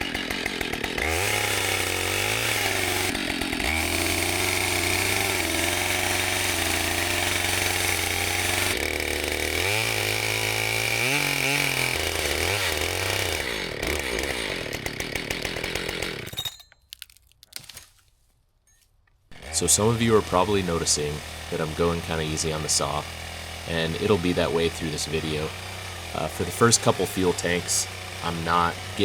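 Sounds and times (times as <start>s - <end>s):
chainsaw cutting timber: 0.0s - 17.8s, 19.3s - 29.0s.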